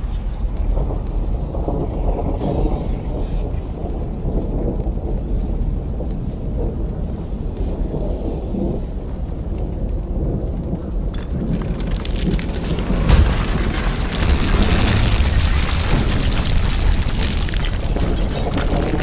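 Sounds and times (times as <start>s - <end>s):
hissing crackling rush: 0.0s - 19.0s
deep rumble: 9.8s - 19.0s
boom: 12.3s - 19.0s.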